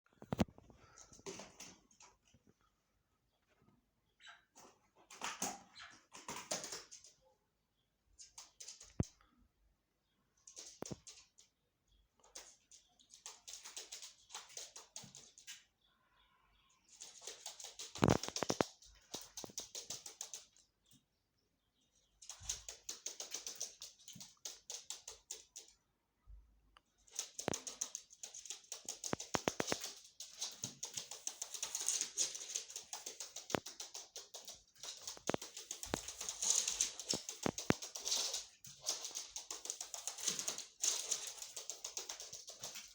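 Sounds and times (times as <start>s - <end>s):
partridge rapid clicking calls: 12.2s - 15.6s, 16.9s - 20.7s, 27.0s - 42.9s.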